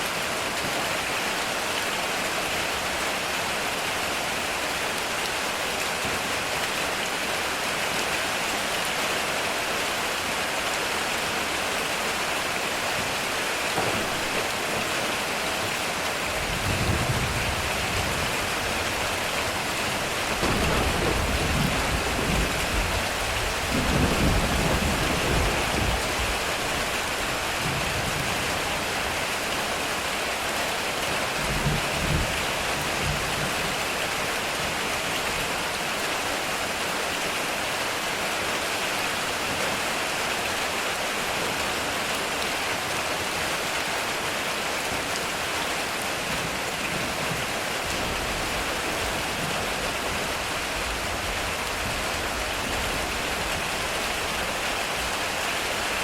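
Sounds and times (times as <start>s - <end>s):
heavy rain on a metal roof: 0.0s - 56.0s
thunder rumbling: 16.3s - 26.4s.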